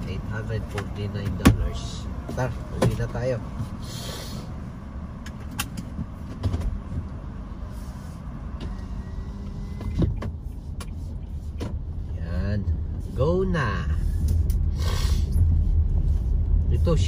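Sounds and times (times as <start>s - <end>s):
car engine rumbling: 0.0s - 17.0s.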